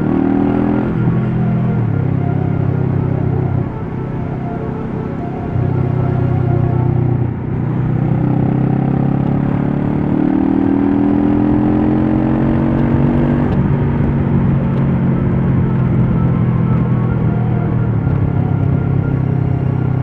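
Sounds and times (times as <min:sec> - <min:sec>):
motorcycle engine under throttle: 0:07.6 - 0:20.0.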